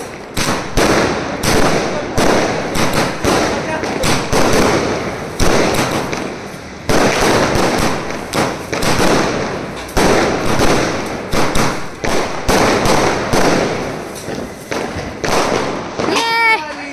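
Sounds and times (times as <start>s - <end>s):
fireworks bangs: 0.0s - 16.9s.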